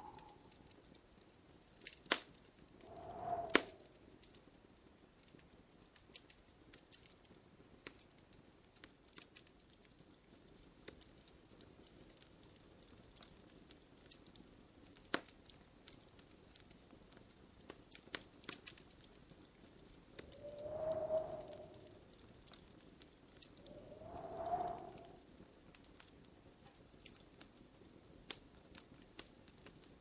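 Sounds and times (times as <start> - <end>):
fire whistling: 0.0 - 0.6, 2.8 - 4.0, 20.1 - 22.3, 23.3 - 25.4
wood fire crackling: 0.0 - 30.0.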